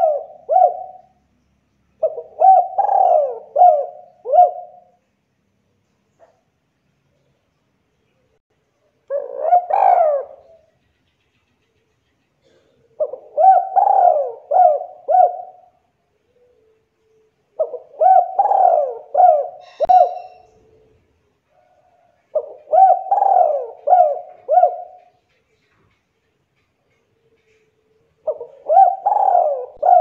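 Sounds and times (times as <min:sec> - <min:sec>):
dove cooing: 0:00.0 - 0:01.2, 0:02.0 - 0:05.0, 0:09.1 - 0:10.7, 0:12.4 - 0:16.8, 0:17.5 - 0:20.9, 0:21.6 - 0:25.3, 0:27.2 - 0:30.0.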